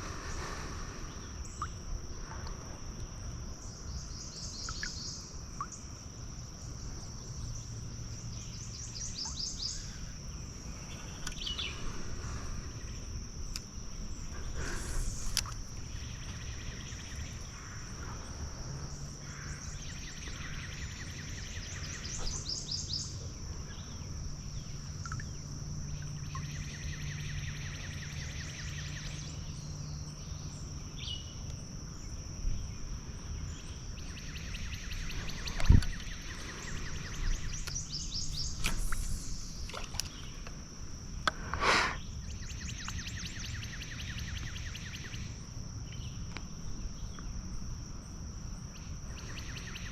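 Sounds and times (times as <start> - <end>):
high steady insect drone: 0.0 - 49.9.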